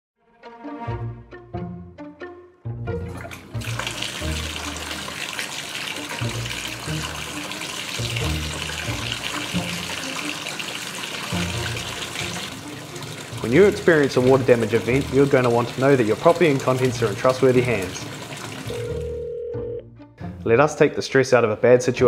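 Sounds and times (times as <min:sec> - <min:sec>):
background music with bass: 0:00.5 - 0:03.2
running water rushing: 0:03.0 - 0:19.2.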